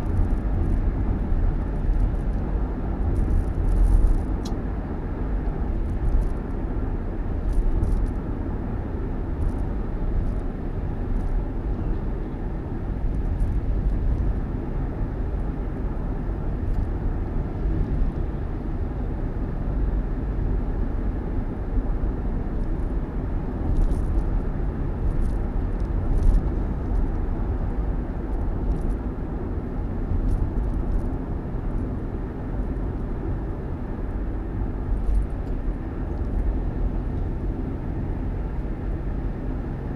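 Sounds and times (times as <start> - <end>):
vehicle road and engine rumble: 0.0 - 39.9.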